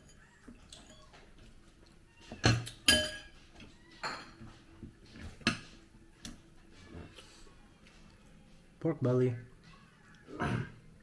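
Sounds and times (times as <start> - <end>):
utensils clinking on plates: 0.0 - 6.4.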